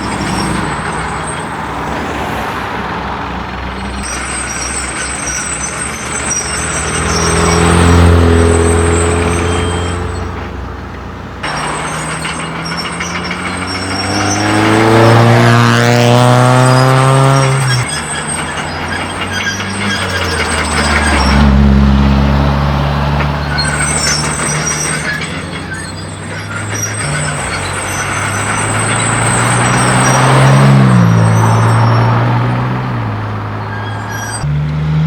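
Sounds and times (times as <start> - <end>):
car exhausts accelerating: 0.0 - 35.0.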